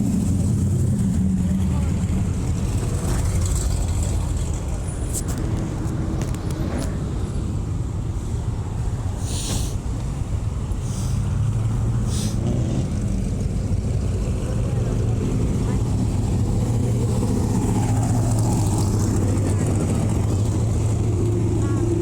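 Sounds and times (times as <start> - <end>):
vehicle engines rumbling: 0.0 - 22.0
short hisses: 9.2 - 9.8, 10.8 - 11.2, 12.0 - 12.4.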